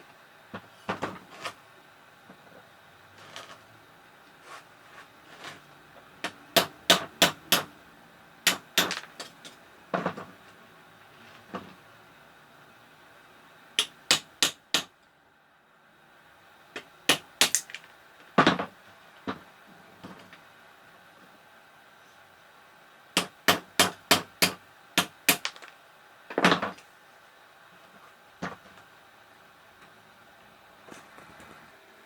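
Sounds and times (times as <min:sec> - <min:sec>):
sharp metal-on-metal knocks: 0:06.2 - 0:07.7, 0:08.5 - 0:09.4, 0:13.8 - 0:14.9, 0:17.1 - 0:17.8, 0:23.2 - 0:25.6.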